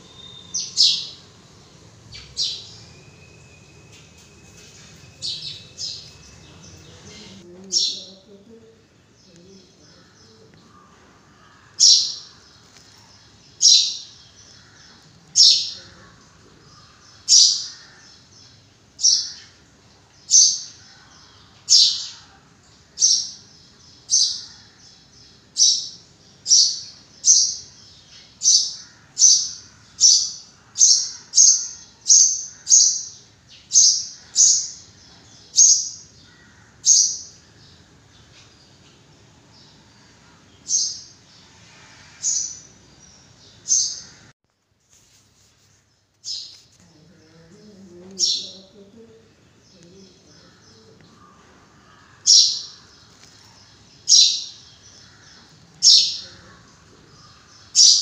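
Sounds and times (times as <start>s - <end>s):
bird calling: 0.0s - 1.4s.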